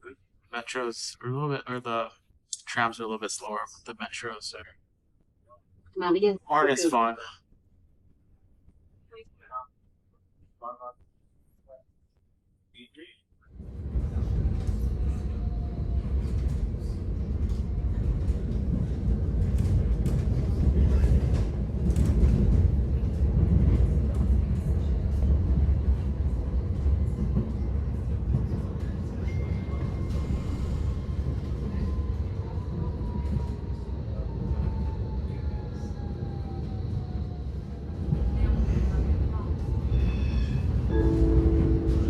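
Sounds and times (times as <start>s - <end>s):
tram rumbling on rails: 13.5s - 42.0s.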